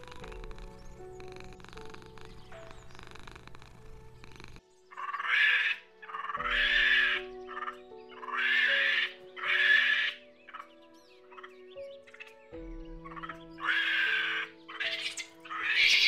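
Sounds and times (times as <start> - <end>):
calm background music: 0.0 - 16.0
monkey calling: 4.9 - 10.7, 13.1 - 16.0.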